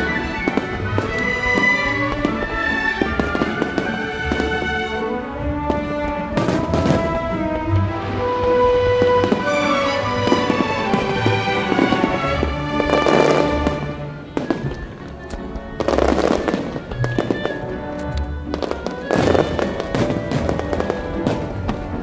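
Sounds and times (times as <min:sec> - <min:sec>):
fireworks bangs: 0:00.0 - 0:04.7, 0:05.6 - 0:07.4, 0:08.9 - 0:14.9, 0:18.5 - 0:22.0
fireworks bursting and crackling: 0:00.0 - 0:05.0, 0:05.6 - 0:07.4, 0:08.7 - 0:17.9, 0:18.5 - 0:22.0
music: 0:00.0 - 0:22.0.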